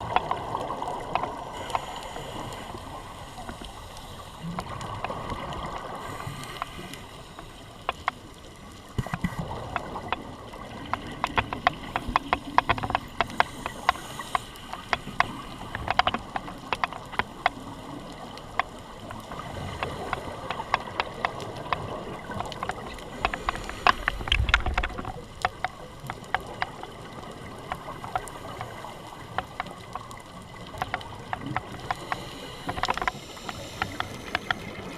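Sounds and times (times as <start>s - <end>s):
sharp clicks and crackles: 0.0s - 34.9s
underwater hiss: 1.3s - 4.8s, 5.8s - 7.8s, 13.2s - 15.7s, 22.9s - 24.6s, 31.8s - 34.9s.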